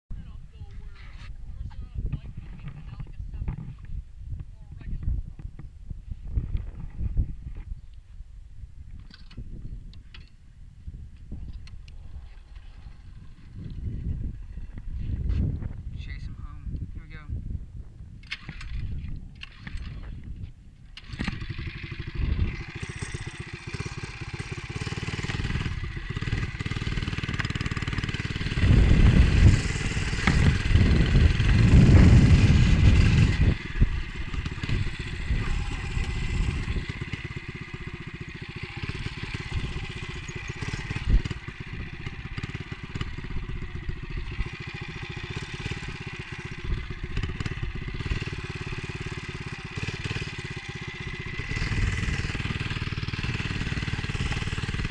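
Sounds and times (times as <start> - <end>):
wind rumble on microphone: 0.1 - 23.2, 25.1 - 38.0, 39.2 - 44.6
small engine running: 11.4 - 15.4, 18.2 - 54.9.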